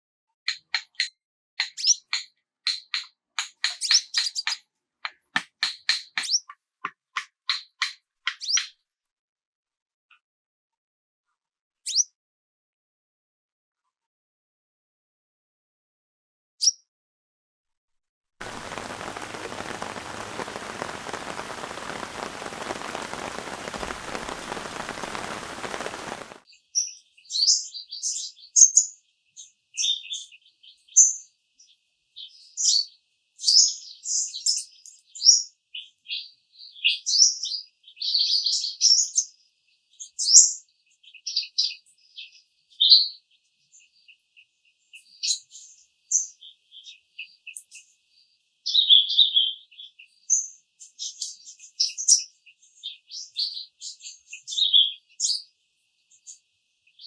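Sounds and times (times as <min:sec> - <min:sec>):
songbird chirping: 0:18.4 - 0:26.4
steady rain hiss: 0:18.4 - 0:26.4.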